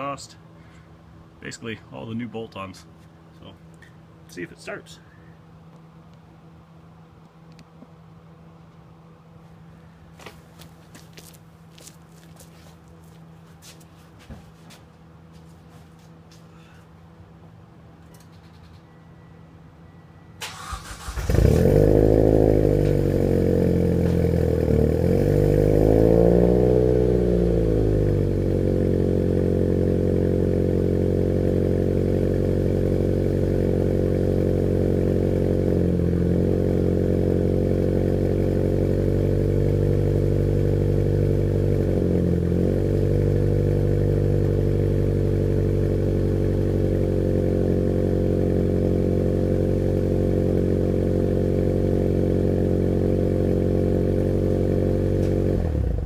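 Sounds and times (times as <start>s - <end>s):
car engine starting and idling: 20.3s - 56.0s.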